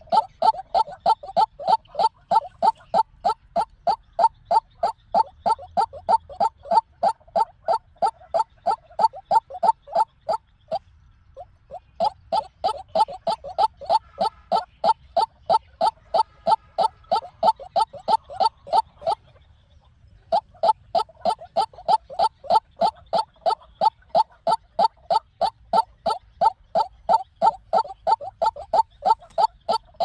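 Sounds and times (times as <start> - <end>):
waterhen calling: 0.0 - 19.6, 20.2 - 30.0.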